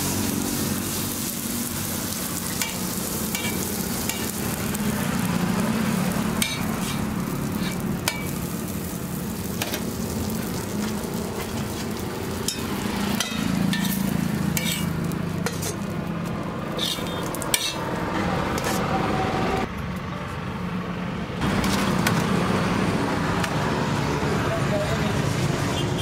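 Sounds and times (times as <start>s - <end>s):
food sizzling on a griddle: 0.0s - 17.8s.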